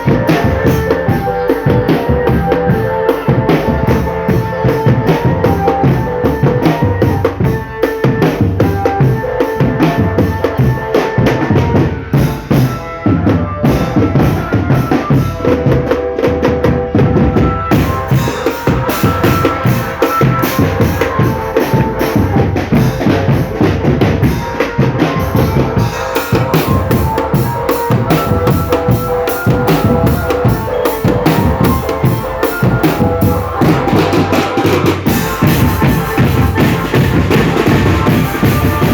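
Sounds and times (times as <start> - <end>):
melody line: 0.0 - 7.6, 16.9 - 38.9
marching drums with rimshots: 0.0 - 38.9.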